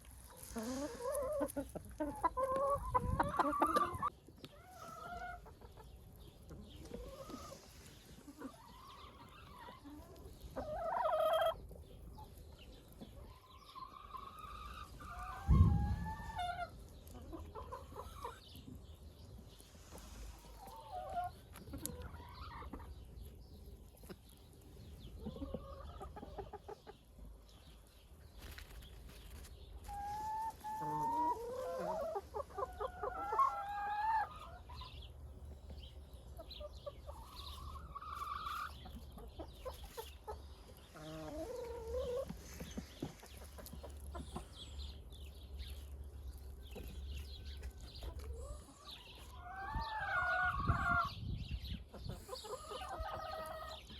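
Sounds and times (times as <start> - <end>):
chickens clucking and calling: 0.0 - 53.9.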